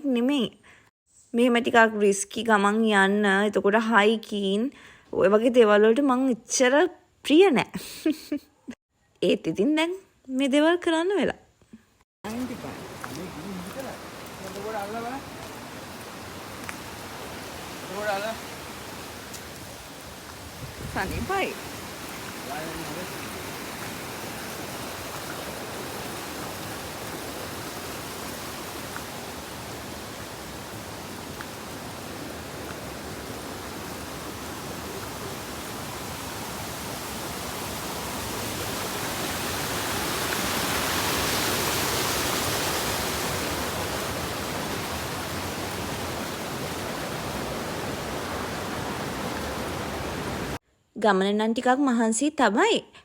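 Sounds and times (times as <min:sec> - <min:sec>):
flowing water rushing: 0:12.3 - 0:50.6.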